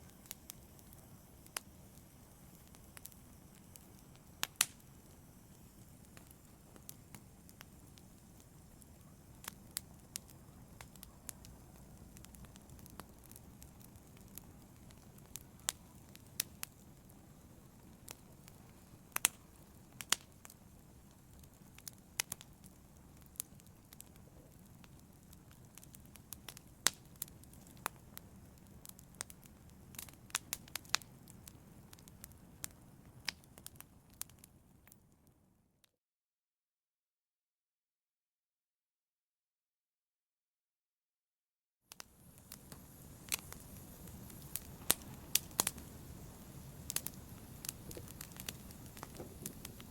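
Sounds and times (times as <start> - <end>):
sharp pops and snaps: 0.0 - 16.9, 18.1 - 28.0, 41.9 - 49.9
wood fire crackling: 0.0 - 35.4, 41.9 - 49.9.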